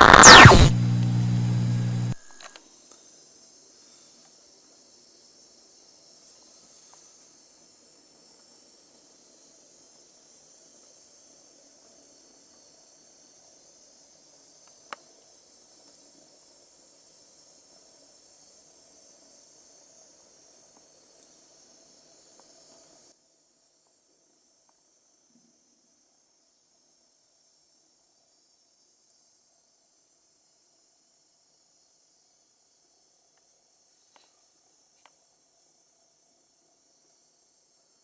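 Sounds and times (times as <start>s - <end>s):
sharp click: 0.0s - 2.5s
faint high-pitched hiss: 0.0s - 38.0s.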